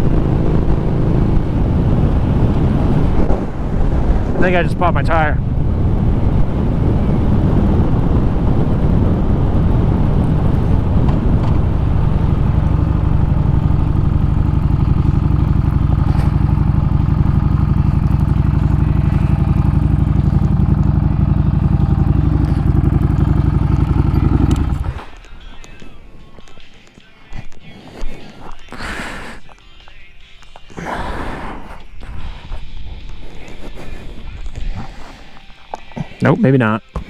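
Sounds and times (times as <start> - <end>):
motorcycle engine running: 0.0 - 26.6.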